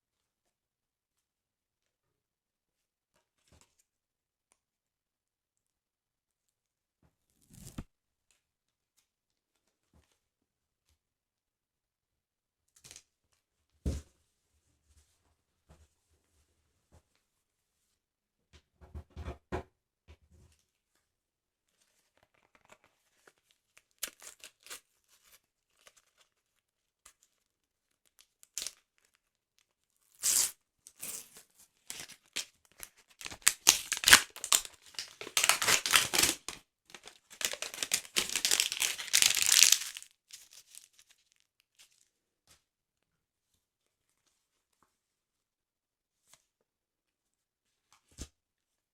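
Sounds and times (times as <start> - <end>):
paper tearing: 33.2 - 40.9.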